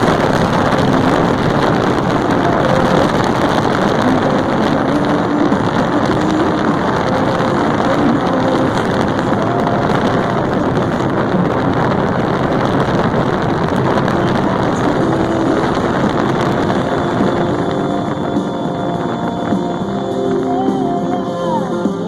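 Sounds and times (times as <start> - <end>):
motorcycle engine running: 0.0 - 21.2
wind on microphone: 0.0 - 22.0.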